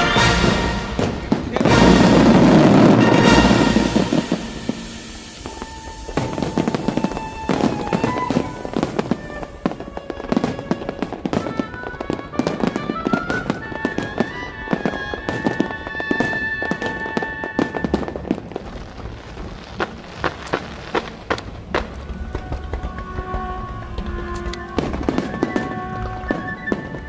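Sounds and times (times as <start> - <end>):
melodic music: 0.0 - 13.2
fireworks bursting and crackling: 0.0 - 27.0.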